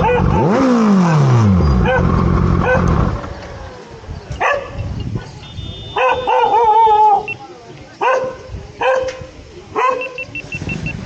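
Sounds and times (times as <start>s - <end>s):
dog barking: 0.0s - 0.7s, 1.8s - 3.0s, 4.4s - 7.3s, 8.0s - 10.3s
motorcycle engine revving: 0.0s - 6.3s.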